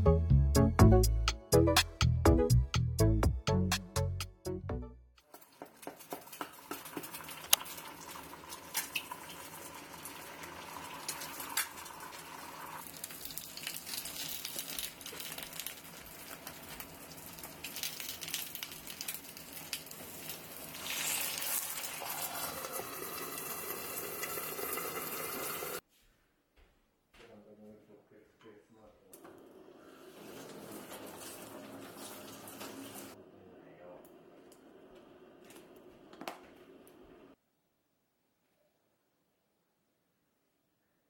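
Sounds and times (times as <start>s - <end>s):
eggs and sausages sizzling: 5.2s - 25.8s, 29.7s - 33.2s
popping and crackling fat: 12.8s - 22.0s.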